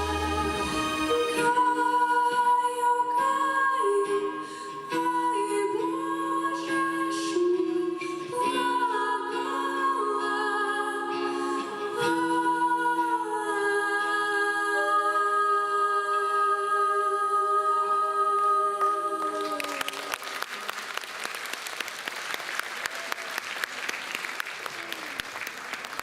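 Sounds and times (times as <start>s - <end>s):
women singing a chord: 0.0s - 19.8s
audience applauding: 18.8s - 26.0s.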